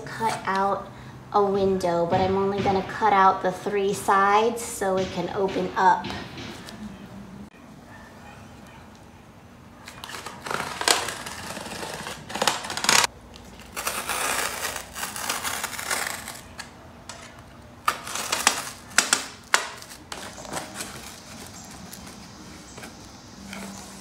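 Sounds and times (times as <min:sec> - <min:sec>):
sharp clicks and knocks: 0:01.7 - 0:07.1
cardboard being cut: 0:10.0 - 0:13.1, 0:13.7 - 0:16.7.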